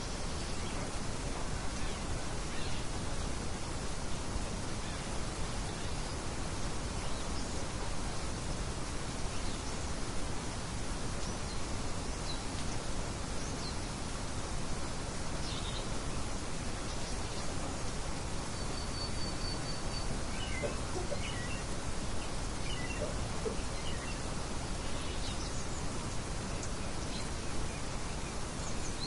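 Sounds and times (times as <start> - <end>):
wind: 0.0 - 29.0
small birds chirping: 15.1 - 29.0.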